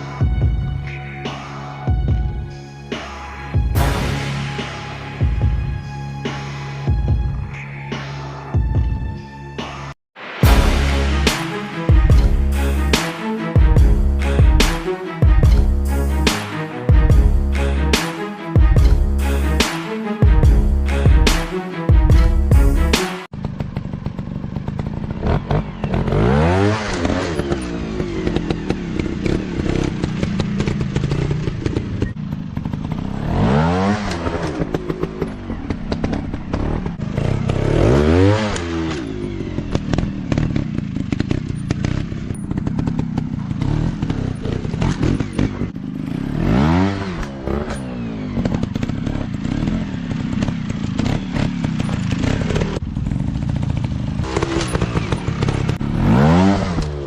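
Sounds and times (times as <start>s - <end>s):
motorcycle engines revving: 22.8s - 57.0s.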